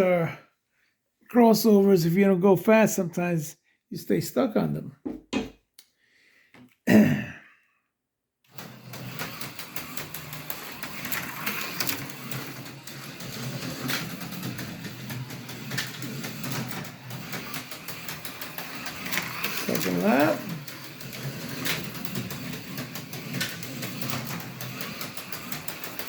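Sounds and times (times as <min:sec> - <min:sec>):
slot car clicking over track: 0:08.5 - 0:26.0
slot car motor whirring: 0:08.5 - 0:26.0.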